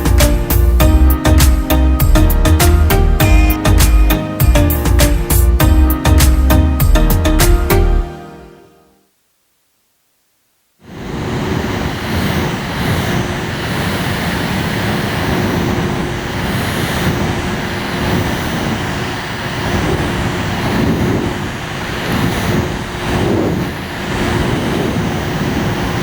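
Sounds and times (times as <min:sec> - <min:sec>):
air conditioner fan blowing: 0:10.9 - 0:26.0.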